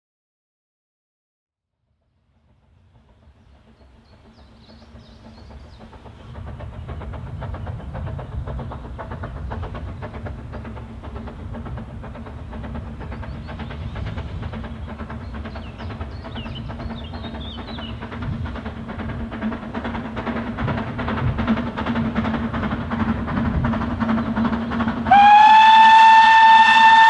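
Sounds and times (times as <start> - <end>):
steam train clattering: 2.0 - 27.0.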